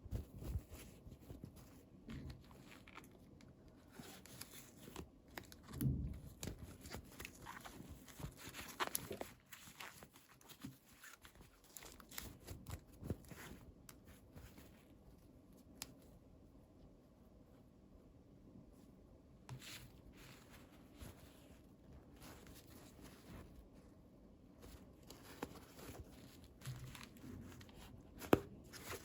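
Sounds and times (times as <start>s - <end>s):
handling plastic toys and packaging: 0.2s - 14.9s.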